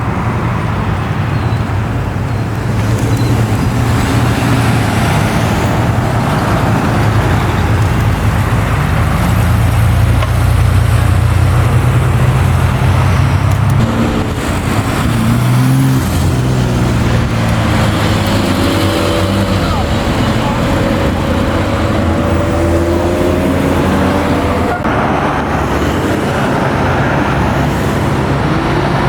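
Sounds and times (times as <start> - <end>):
car engine running at low revs: 2.8 - 25.4.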